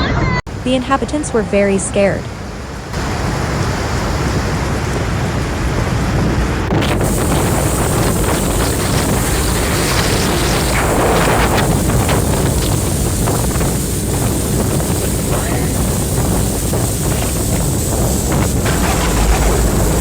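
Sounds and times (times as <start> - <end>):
storm wind buffeting microphone: 0.0 - 20.0
scattered crackles: 6.6 - 20.0.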